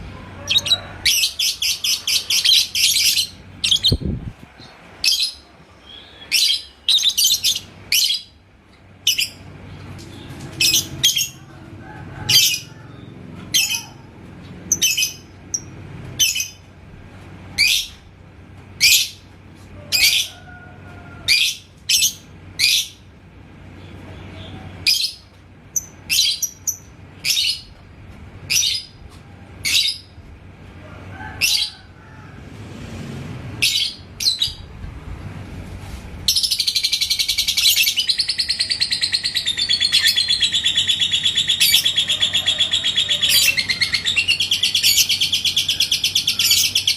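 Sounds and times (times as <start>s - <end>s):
lovebird chirping: 0.5s - 4.1s, 36.3s - 46.9s.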